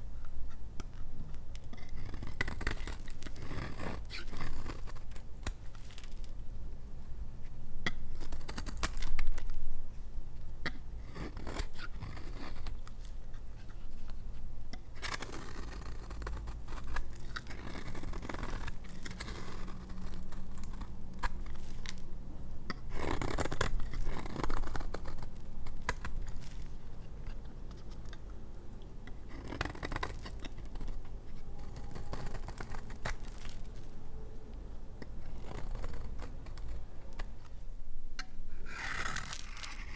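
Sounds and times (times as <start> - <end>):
knife cutting hard soap: 10.7 - 22.0, 22.7 - 28.2, 29.2 - 33.7, 38.2 - 39.9.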